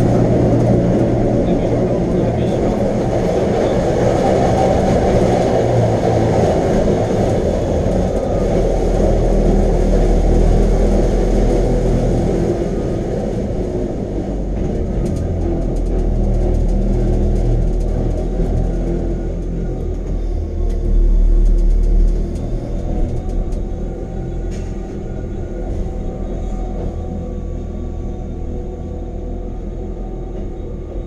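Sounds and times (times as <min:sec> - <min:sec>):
rack train rumbling on track: 0:00.0 - 0:31.0.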